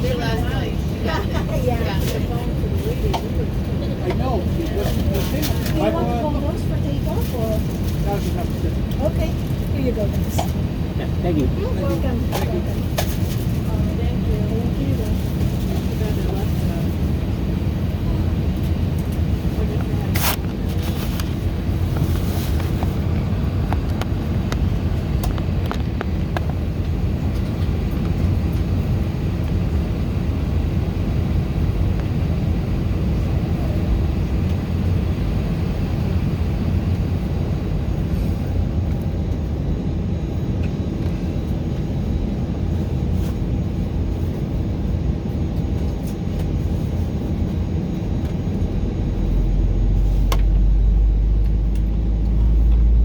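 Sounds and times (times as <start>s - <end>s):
airplane cabin rumble: 0.0s - 53.0s
constant hum: 0.0s - 53.0s.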